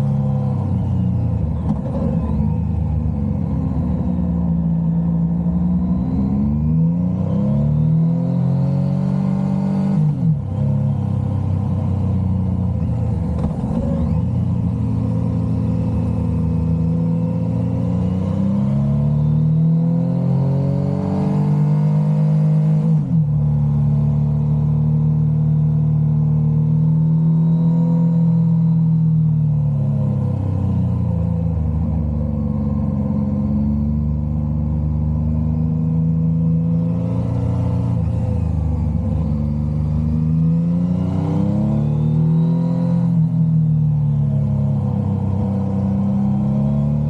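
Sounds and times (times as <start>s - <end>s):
motorcycle engine revving: 30.6s - 47.0s.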